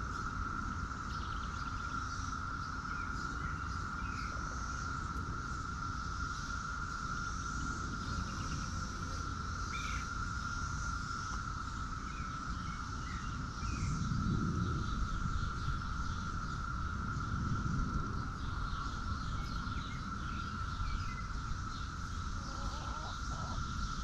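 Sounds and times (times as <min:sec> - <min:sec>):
high-pitched insect drone: 0:00.0 - 0:24.0
insect chirps: 0:00.0 - 0:24.0.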